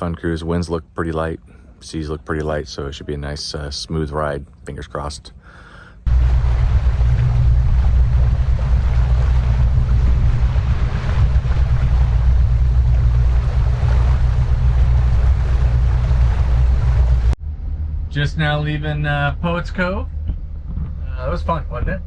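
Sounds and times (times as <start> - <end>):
boat engine rumble: 0.0 - 22.0
rushing water: 6.1 - 17.4
wind buffeting microphone: 6.1 - 17.4.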